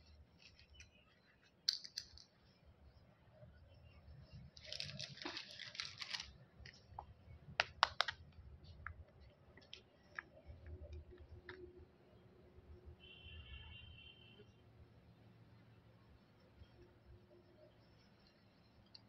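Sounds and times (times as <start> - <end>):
plastic wrapper crinkling: 4.6 - 6.8.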